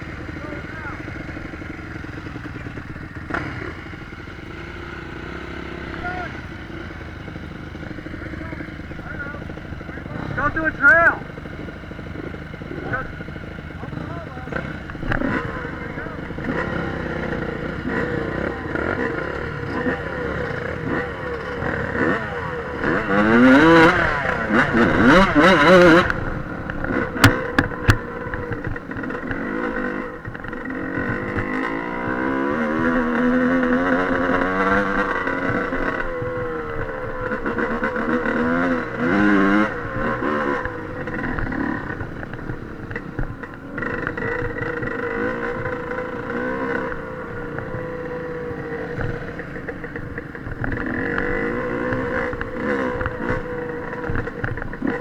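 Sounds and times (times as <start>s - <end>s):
dirt bike engine revving: 0.0s - 55.0s
sharp knocks: 25.0s - 28.8s.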